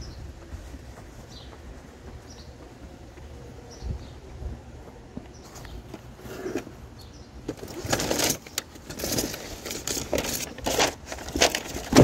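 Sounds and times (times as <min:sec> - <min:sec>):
patio furniture clattering and scraping: 0:07.5 - 0:12.0.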